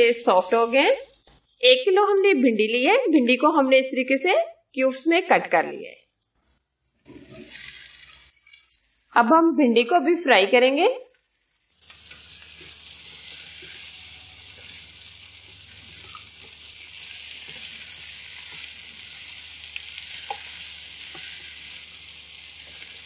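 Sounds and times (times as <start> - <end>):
vegetables sizzling in oil: 0.0 - 1.3, 7.0 - 8.5, 10.0 - 23.0
spatula stirring: 11.1 - 23.0.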